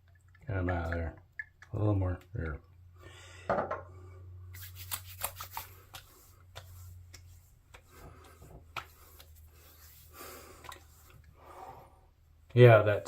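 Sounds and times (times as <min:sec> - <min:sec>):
light pats on skin: 0:04.5 - 0:11.3
hands rubbing skin: 0:04.5 - 0:11.4.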